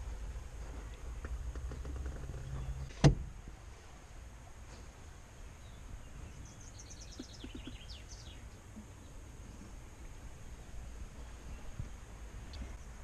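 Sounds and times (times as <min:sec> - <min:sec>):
faint steady background noise: 0:00.0 - 0:13.0
sharp thump: 0:02.9 - 0:03.3
bird chirping: 0:05.4 - 0:09.2.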